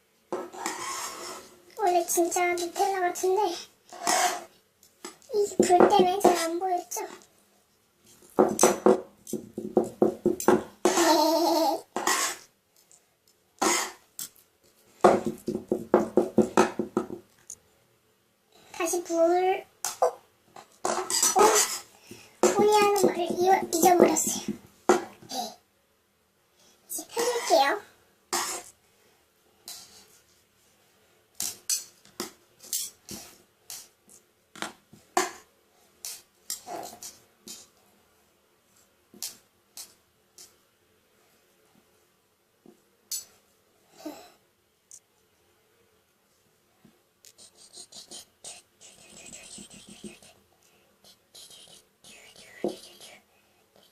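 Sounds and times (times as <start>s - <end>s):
utensil scraping a dish: 0.5s - 1.5s, 4.0s - 4.5s, 12.0s - 12.5s, 13.6s - 14.0s, 20.9s - 21.9s, 27.2s - 27.6s.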